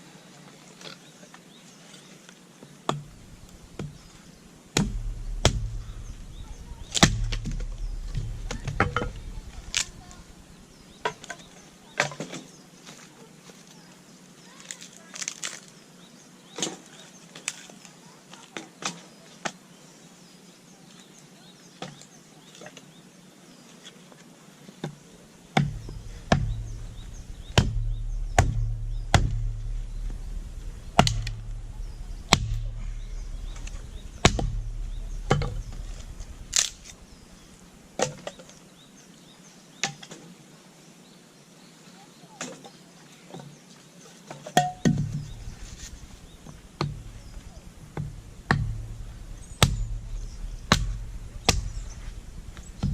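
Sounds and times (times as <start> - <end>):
wood splitting strikes: 2.9 - 12.4, 25.6 - 38.4, 44.6 - 52.9
low rumble: 3.0 - 11.0, 25.7 - 37.9, 45.0 - 52.9.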